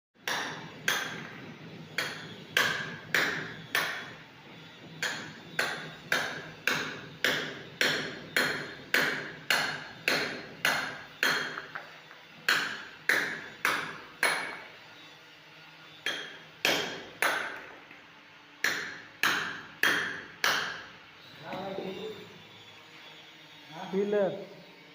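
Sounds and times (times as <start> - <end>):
hammer striking chisel: 0.2 - 4.2, 4.9 - 14.8, 16.0 - 17.9, 18.6 - 21.8.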